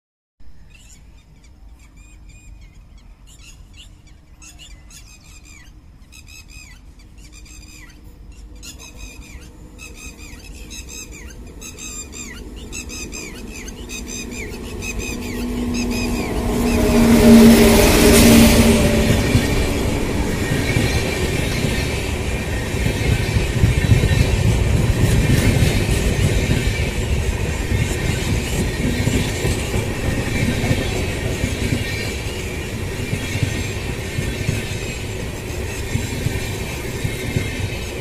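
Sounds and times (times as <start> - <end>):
high chirping calls: 0.6 - 16.9
train rumble: 5.5 - 38.0.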